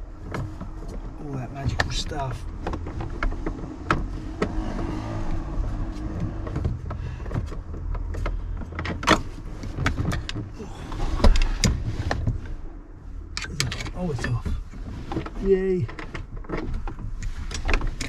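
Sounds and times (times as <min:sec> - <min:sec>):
tools knocking and scraping car part: 0:00.1 - 0:12.5.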